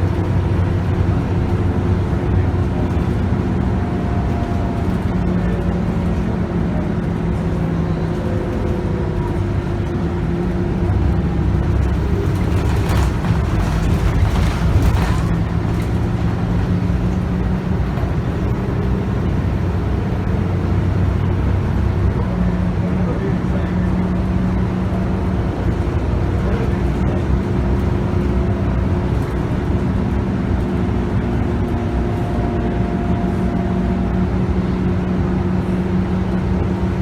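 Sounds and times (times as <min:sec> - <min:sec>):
bus engine running: 0:00.0 - 0:37.0
rattling and knocks: 0:11.6 - 0:16.6.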